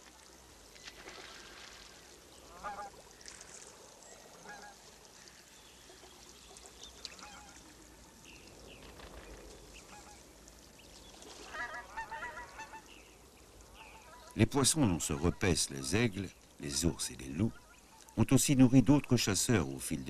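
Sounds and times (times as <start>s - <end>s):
faint wavering bird cries: 17.4s - 18.2s.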